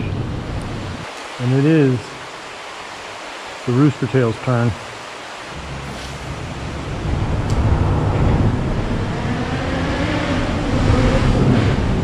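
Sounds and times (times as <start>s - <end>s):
road traffic rumble: 0.0s - 12.0s
vehicle engine: 5.6s - 12.0s.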